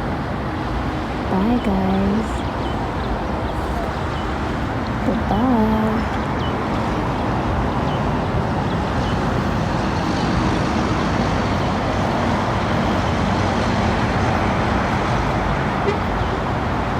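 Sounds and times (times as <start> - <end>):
loud steady noise: 0.0 - 16.9.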